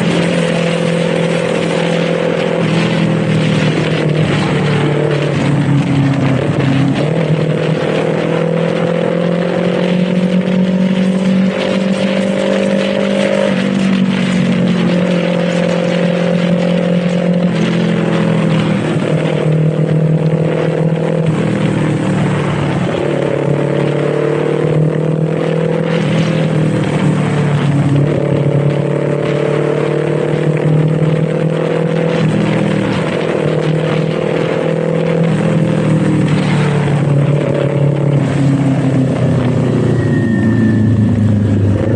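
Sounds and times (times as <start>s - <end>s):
motorcycle engine running: 0.0s - 41.9s
wind rushing: 0.0s - 41.9s.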